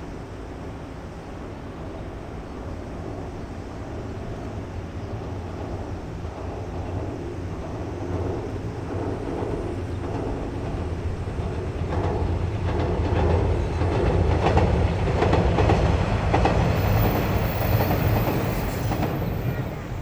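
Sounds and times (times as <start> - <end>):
train engine drone: 0.0 - 20.0
wheels clacking over rail joints: 5.3 - 20.0.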